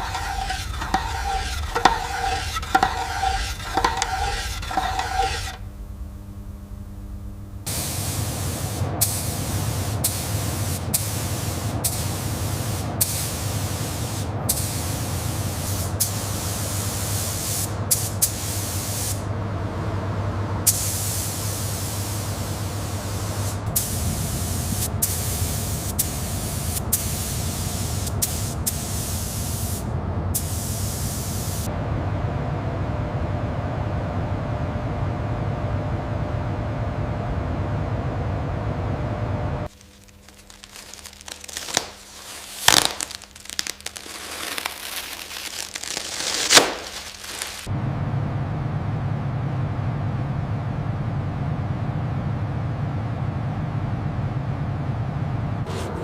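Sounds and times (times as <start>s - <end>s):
spray hissing: 0.0s - 5.6s, 7.7s - 19.2s, 20.7s - 31.7s, 40.8s - 47.7s
low steady hum: 0.0s - 45.2s, 47.6s - 56.0s.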